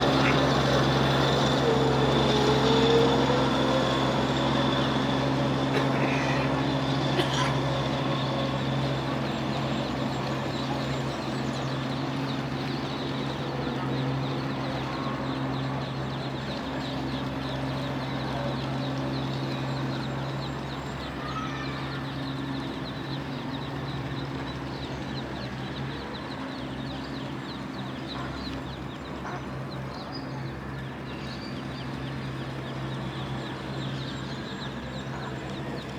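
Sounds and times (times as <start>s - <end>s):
ducklings peeping: 26.2s - 30.3s.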